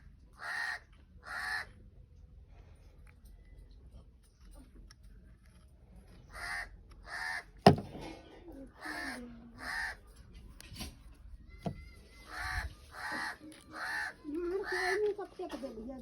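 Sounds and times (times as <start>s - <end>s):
crow cawing: 0.4s - 1.8s, 6.3s - 7.6s, 8.8s - 10.1s, 12.2s - 15.1s.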